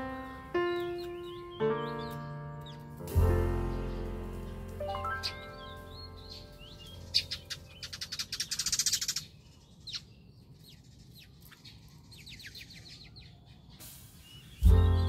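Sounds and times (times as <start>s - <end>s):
loud fast bird trill: 0.0s - 2.8s, 3.8s - 10.1s, 12.2s - 15.0s
small birds chirping: 0.0s - 15.0s.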